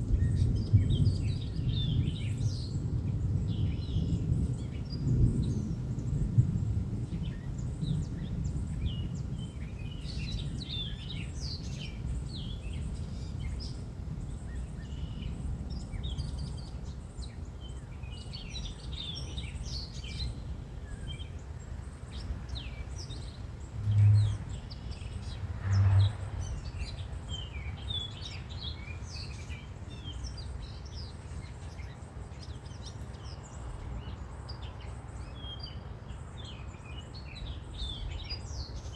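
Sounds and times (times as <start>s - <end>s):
small songbirds chirping: 0.0s - 38.9s
low outdoor rumble: 20.3s - 32.5s.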